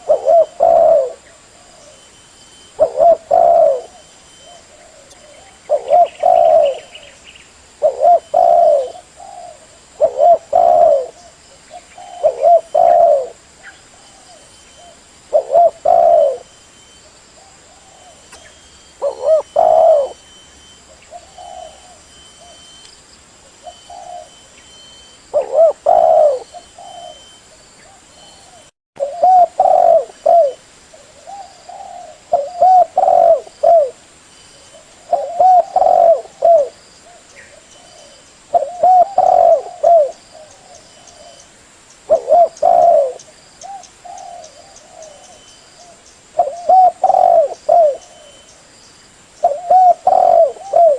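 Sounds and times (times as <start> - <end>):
dove cooing: 0.0 - 7.2, 7.8 - 22.8, 23.5 - 34.0, 34.6 - 41.5, 42.1 - 48.5, 49.4 - 50.9.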